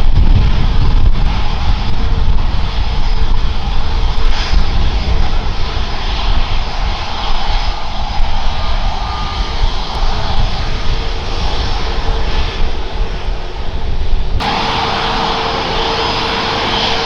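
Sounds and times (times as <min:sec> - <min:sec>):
airliner engines roaring: 0:14.4 - 0:17.0.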